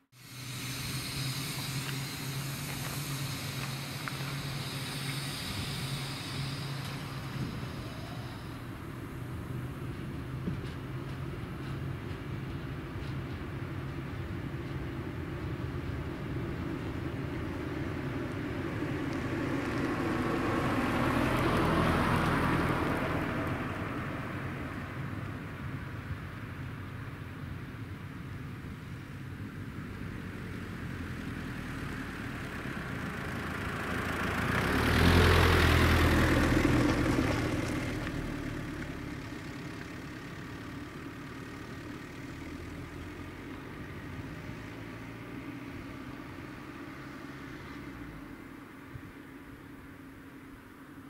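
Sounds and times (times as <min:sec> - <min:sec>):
low hum: 0:00.0 - 0:21.3
vehicle passing by: 0:00.1 - 0:25.8, 0:29.6 - 0:49.2
train wheels rushing on rails: 0:00.2 - 0:25.8.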